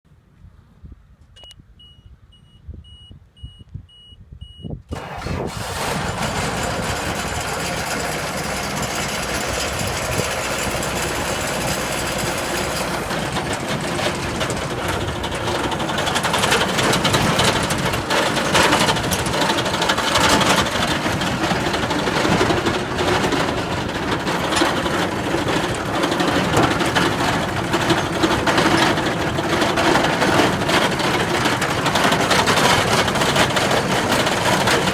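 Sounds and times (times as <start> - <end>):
warning beeps: 1.4 - 4.7
diesel engine cranking and running: 4.9 - 34.9.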